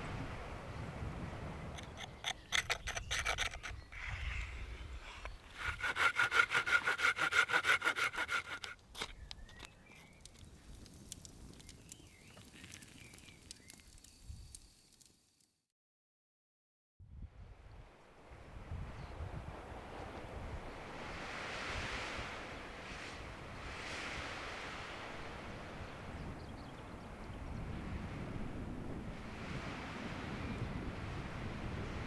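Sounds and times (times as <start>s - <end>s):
hand saw cutting wood: 1.7s - 9.7s.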